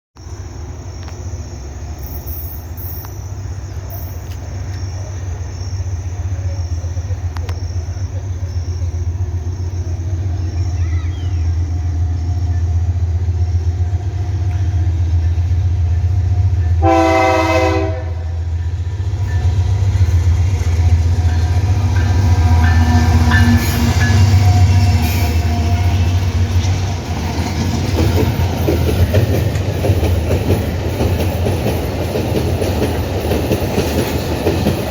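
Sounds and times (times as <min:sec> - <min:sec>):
locomotive engine rumble: 0:00.2 - 0:34.9
wheel and rail noise: 0:00.2 - 0:34.9
train horn blast: 0:16.8 - 0:18.5.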